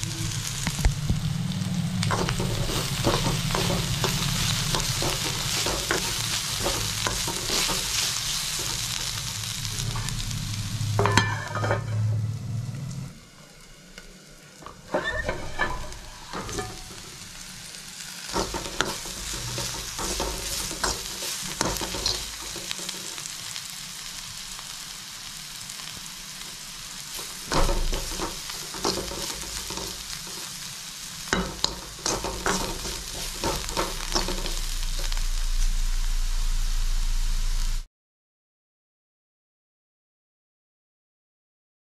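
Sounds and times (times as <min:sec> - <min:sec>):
vegetables sizzling in oil: 0:00.0 - 0:37.9
steel spoon scraping a pan: 0:02.1 - 0:10.3, 0:11.0 - 0:12.2, 0:14.8 - 0:17.4, 0:18.3 - 0:23.2, 0:27.1 - 0:30.6, 0:31.3 - 0:35.8.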